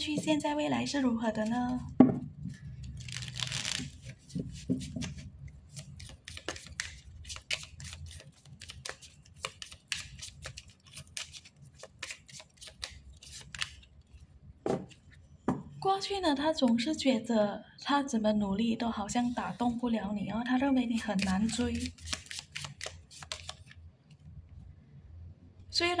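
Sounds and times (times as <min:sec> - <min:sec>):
cards clicking and snapping: 0:05.8 - 0:13.8, 0:21.2 - 0:23.7.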